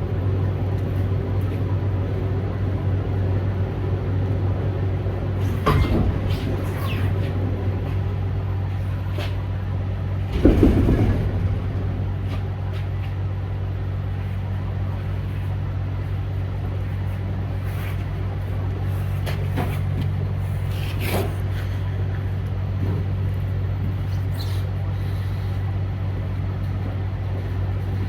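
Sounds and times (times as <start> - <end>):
truck engine drone: 0.0 - 15.4
loud low rumble: 10.2 - 13.4.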